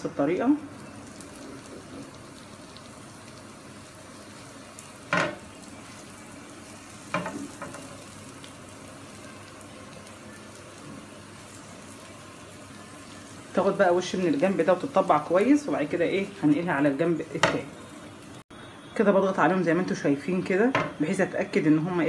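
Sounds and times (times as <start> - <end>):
sandwiches sizzling on griddle: 0.6 - 18.4.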